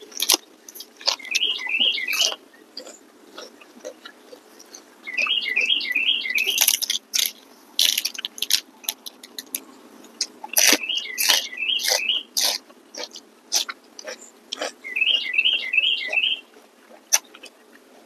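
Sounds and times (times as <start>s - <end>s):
chewing and crunching food: 0.0s - 18.0s
bird rising chirps: 1.1s - 2.4s, 5.0s - 6.7s, 10.6s - 12.4s, 14.8s - 16.5s.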